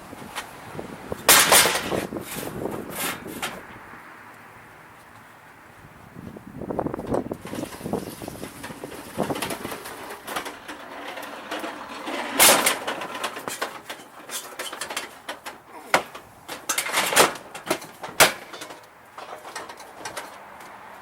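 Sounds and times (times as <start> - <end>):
snowblower being handled clunks: 7.0 - 20.8.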